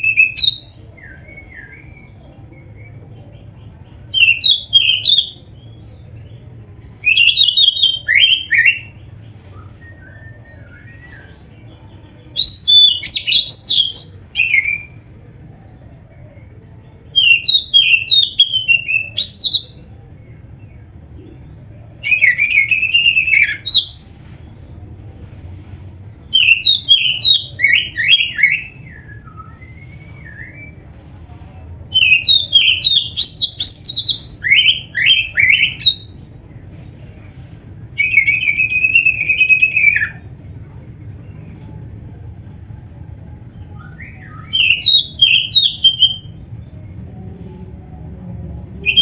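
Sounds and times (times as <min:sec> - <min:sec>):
faint low hum: 0:00.0 - 0:49.0
bird singing whistled phrases: 0:12.4 - 0:15.0, 0:26.3 - 0:30.8, 0:31.9 - 0:36.2, 0:38.0 - 0:40.2, 0:43.8 - 0:46.4.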